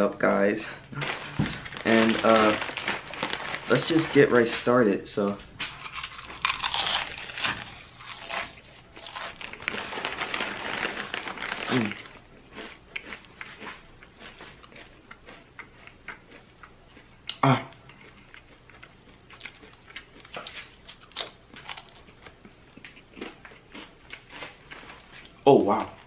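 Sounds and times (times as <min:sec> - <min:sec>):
potato chips crunching: 0:01.0 - 0:04.7, 0:05.6 - 0:16.7, 0:17.9 - 0:26.0.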